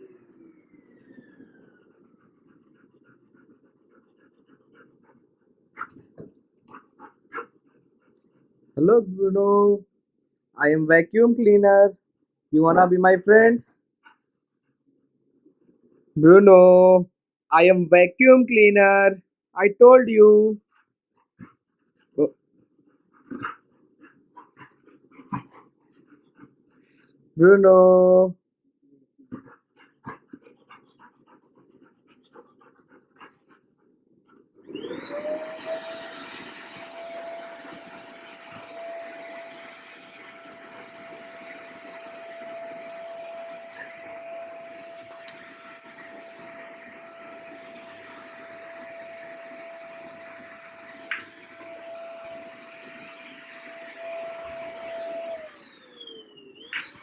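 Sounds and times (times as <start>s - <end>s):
vacuum cleaner motor whine: 0.0s - 2.1s, 34.6s - 57.0s.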